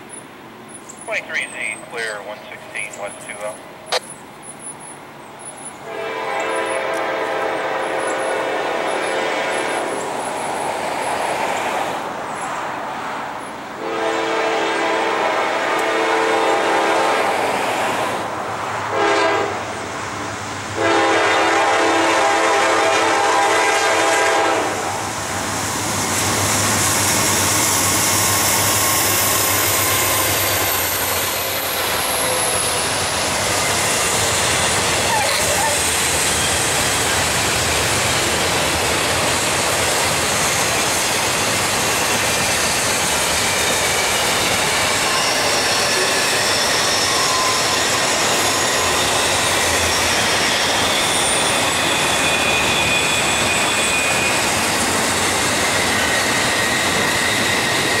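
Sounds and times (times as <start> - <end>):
train wheels rushing on rail: 0.0 - 58.0
train air horn: 5.8 - 9.9, 13.8 - 17.3, 18.9 - 19.7, 20.8 - 25.0
high-pitched wheel squeal: 26.0 - 37.2, 41.8 - 58.0.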